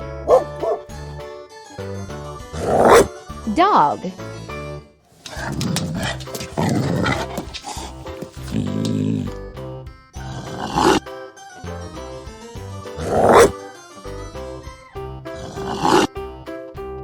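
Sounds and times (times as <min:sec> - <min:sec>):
dog growling: 0:02.6 - 0:03.1, 0:05.2 - 0:09.5, 0:10.2 - 0:11.0, 0:13.0 - 0:13.6, 0:15.4 - 0:16.1.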